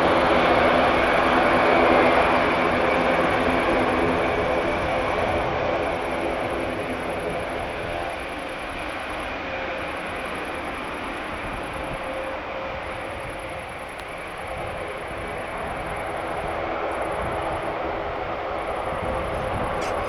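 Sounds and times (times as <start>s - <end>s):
turboprop engines droning: 0.0s - 20.0s.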